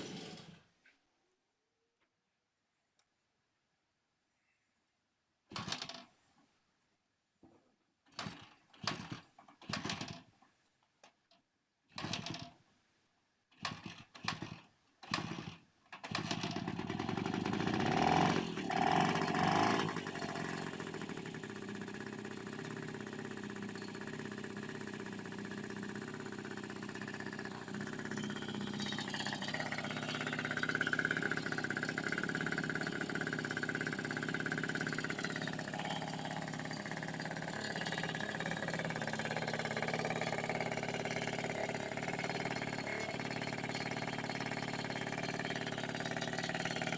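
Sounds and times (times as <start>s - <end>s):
motorcycle engine starting and idling: 0.0s - 0.7s, 5.5s - 6.1s, 8.1s - 10.4s, 11.0s - 12.6s, 13.5s - 46.9s
high whine: 35.3s - 37.0s.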